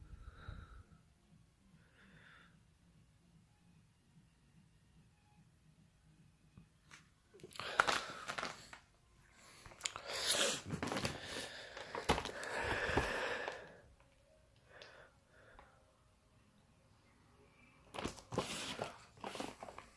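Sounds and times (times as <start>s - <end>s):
packaging crinkling and tearing: 7.4s - 8.8s, 9.7s - 13.6s, 17.9s - 19.9s.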